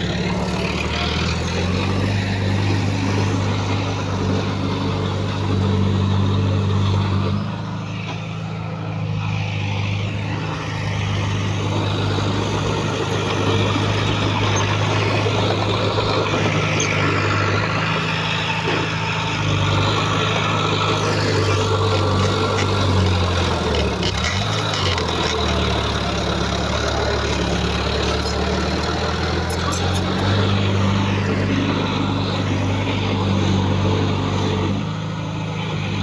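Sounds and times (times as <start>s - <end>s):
heavy diesel engine running: 0.0s - 36.0s.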